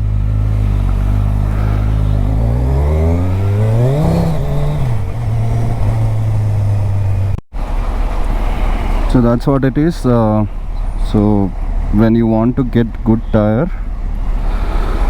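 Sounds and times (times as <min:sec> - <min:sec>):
motorcycle engine revving: 0:00.0 - 0:08.1.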